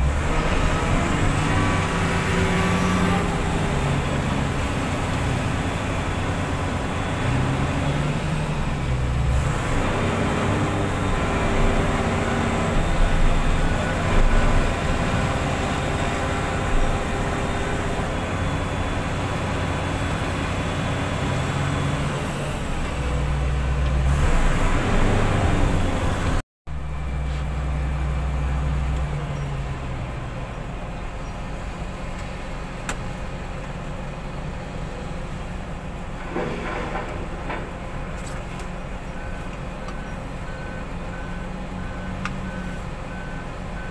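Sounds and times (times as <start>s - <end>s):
heavy diesel engine revving: 0.0s - 32.7s.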